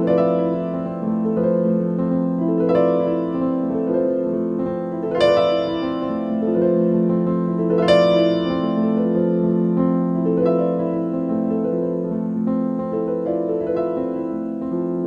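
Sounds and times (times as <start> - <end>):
piano playing slow chords: 0.0 - 15.0.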